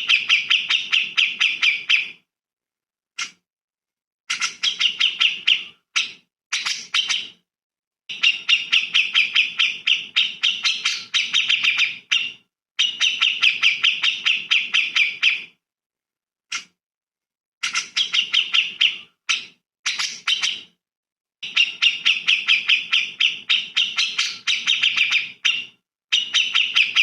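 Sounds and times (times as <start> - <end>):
bird chirping rapidly: 0.0 - 2.2, 4.3 - 7.4, 8.1 - 15.5, 17.6 - 20.7, 21.4 - 27.0.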